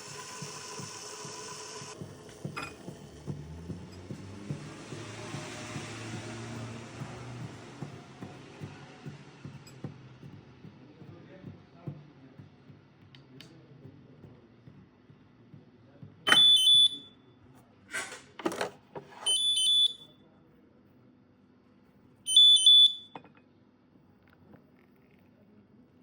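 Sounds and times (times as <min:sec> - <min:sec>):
coffee machine beeps: 0:00.0 - 0:03.0, 0:16.3 - 0:17.2, 0:19.2 - 0:20.2, 0:22.3 - 0:23.3.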